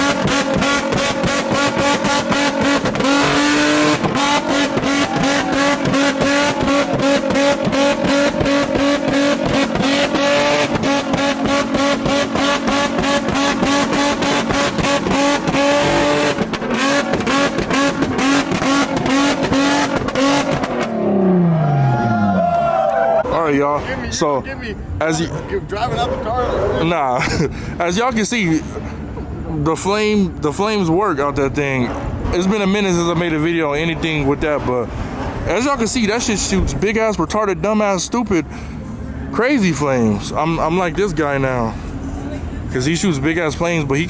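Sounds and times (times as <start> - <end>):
exhaust pops and bangs: 0.0 - 21.0
engine at rev limiter: 0.0 - 23.4.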